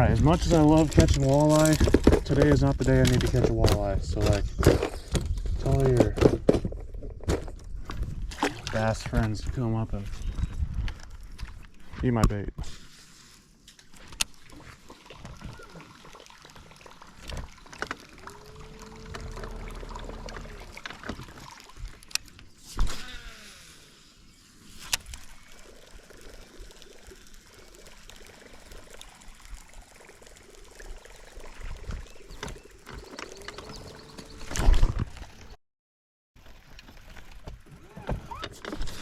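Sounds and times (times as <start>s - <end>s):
water sloshing and trickling: 0.0s - 12.0s, 12.9s - 22.9s, 24.6s - 35.6s, 36.4s - 39.0s
short hum: 18.3s - 20.9s.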